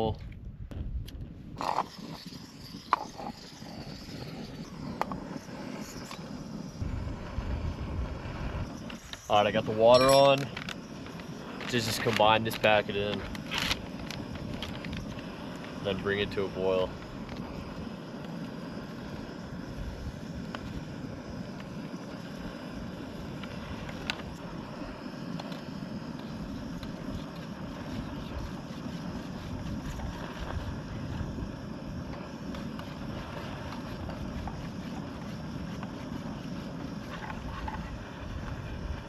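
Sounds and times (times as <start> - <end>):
wind buffeting microphone: 0.0 - 5.8, 6.6 - 18.0, 26.4 - 39.0
camp stove burner running: 1.1 - 39.0.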